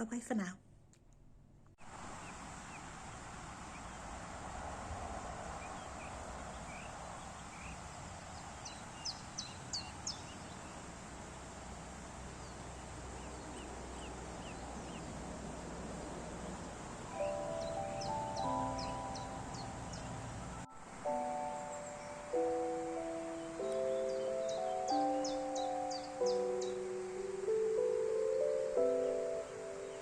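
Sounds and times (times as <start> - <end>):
steady outdoor hiss: 1.8 - 30.0
birds chirping: 2.0 - 30.0
sharp high bird calls: 17.1 - 27.0.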